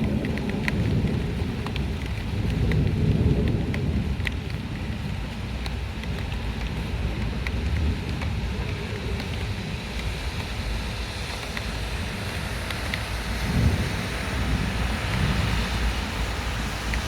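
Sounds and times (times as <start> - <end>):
heavy rain downpour: 0.0 - 17.0
raindrop ticks: 0.0 - 17.0
wind buffeting microphone: 0.0 - 17.0.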